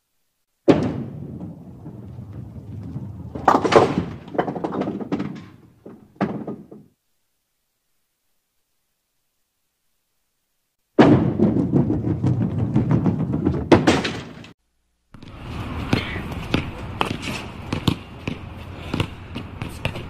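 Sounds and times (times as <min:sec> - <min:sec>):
bowling ball rolling: 0:00.6 - 0:06.9, 0:11.0 - 0:14.5
bowling pins clattering: 0:00.6 - 0:07.0, 0:11.0 - 0:14.6.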